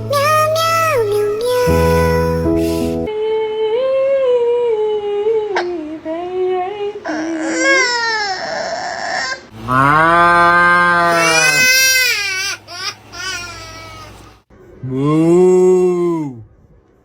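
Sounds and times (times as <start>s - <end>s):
baby crying: 7.1s - 9.5s, 11.0s - 14.2s.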